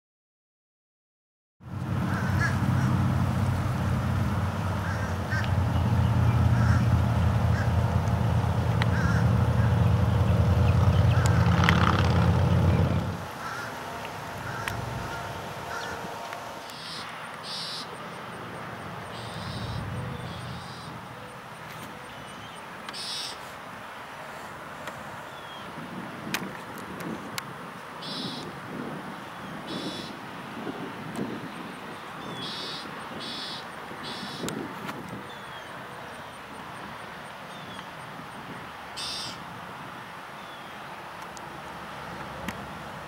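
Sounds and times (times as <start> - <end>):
steady low hum: 1.7 - 21.4
birds chirping and cawing: 2.1 - 3.1, 4.6 - 23.4, 32.2 - 34.5, 39.0 - 39.4
short high bird calls: 13.4 - 18.0, 19.1 - 21.0, 22.0 - 23.4, 28.0 - 28.5, 29.7 - 30.2, 32.3 - 34.5, 39.0 - 39.4.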